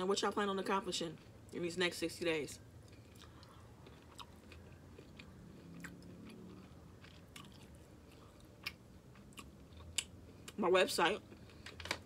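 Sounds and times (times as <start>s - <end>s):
chewing food: 2.7s - 10.6s.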